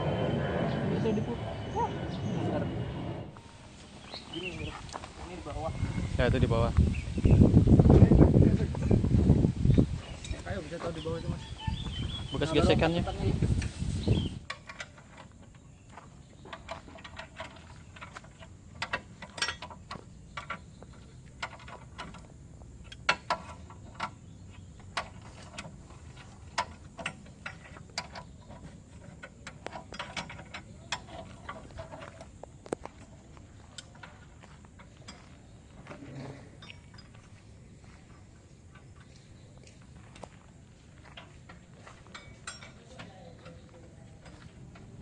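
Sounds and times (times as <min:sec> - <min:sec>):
metal tools clicking and knocking: 0:16.5 - 0:24.2, 0:24.8 - 0:32.3, 0:41.2 - 0:44.9.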